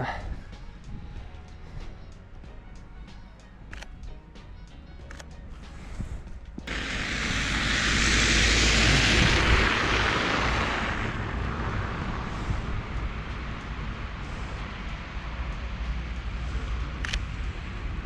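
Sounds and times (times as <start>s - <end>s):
background music: 0.0s - 18.0s
vehicle passing: 6.7s - 18.0s.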